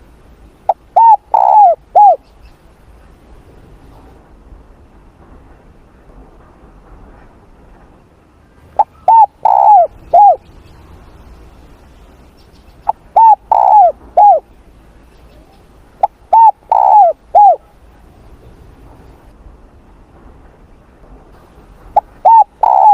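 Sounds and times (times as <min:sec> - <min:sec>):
dove cooing: 0:00.7 - 0:02.2, 0:08.8 - 0:10.5, 0:12.8 - 0:14.5, 0:15.3 - 0:17.8, 0:22.0 - 0:22.9.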